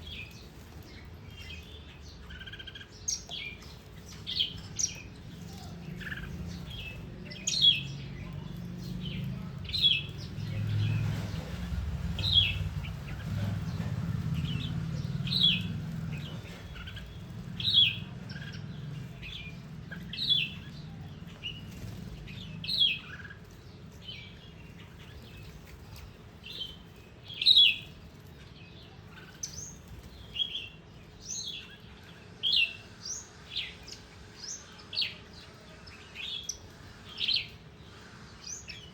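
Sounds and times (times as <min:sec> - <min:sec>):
small birds chirping: 0:00.0 - 0:38.9
low rumble: 0:04.2 - 0:26.2.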